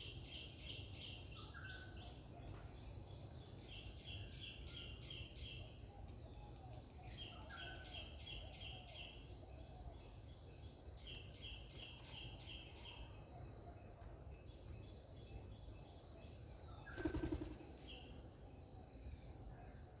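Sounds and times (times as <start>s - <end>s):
high insect drone: 16.2s - 19.9s.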